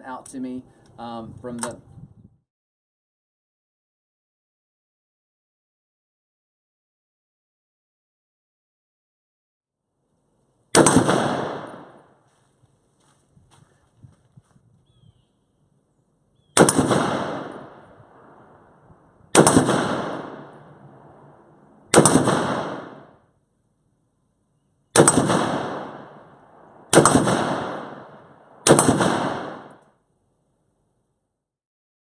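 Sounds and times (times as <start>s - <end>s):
rifle shots: 10.7s - 12.1s, 16.6s - 18.6s, 19.3s - 21.3s, 21.9s - 23.2s, 24.9s - 29.8s.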